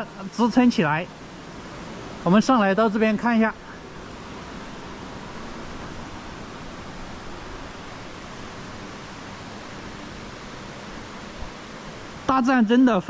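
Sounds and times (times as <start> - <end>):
mountain river rushing: 0.0 - 13.0.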